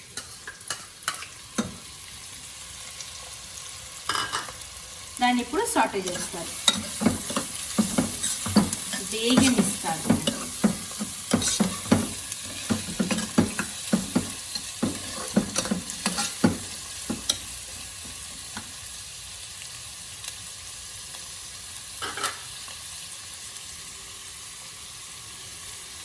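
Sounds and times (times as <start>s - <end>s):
onions sizzling in oil: 0.0s - 26.0s
stirring knocks against pan: 6.7s - 17.4s.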